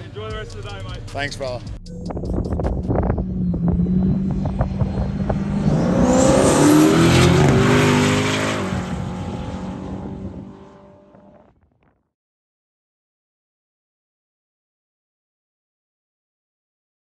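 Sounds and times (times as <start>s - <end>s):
car engine accelerating hard: 2.1s - 11.5s.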